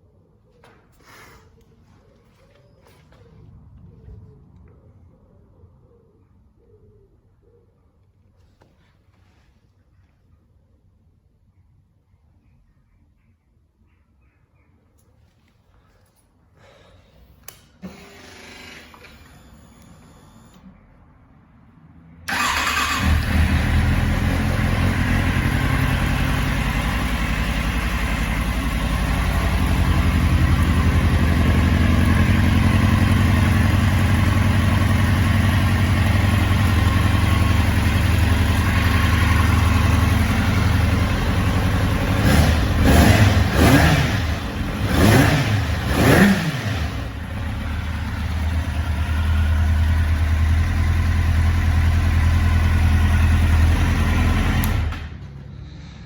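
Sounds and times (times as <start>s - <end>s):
motorcycle engine idling: 22.3s - 55.4s
motorcycle engine revving: 22.3s - 55.4s.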